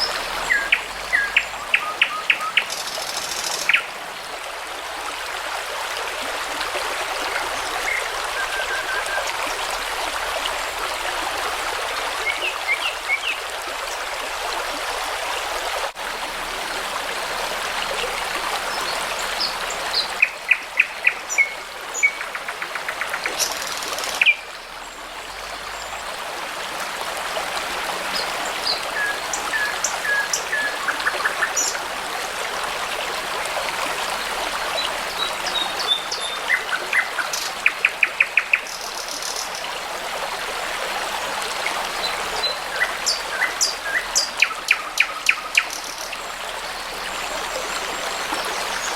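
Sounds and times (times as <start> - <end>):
songbirds singing: 0.0 - 4.0, 34.8 - 39.6, 41.6 - 48.9
babbling brook: 0.0 - 48.9.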